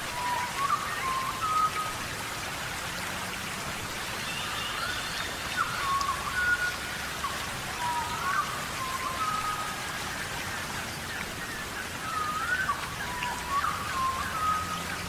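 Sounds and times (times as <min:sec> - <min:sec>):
rain on foliage: 0:00.0 - 0:15.0
whistled animal calls: 0:12.1 - 0:15.0.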